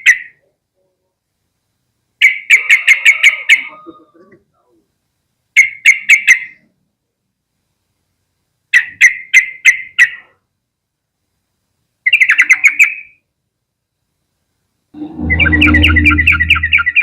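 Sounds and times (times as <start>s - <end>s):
bird calling in sharp notes: 15.0s - 17.0s.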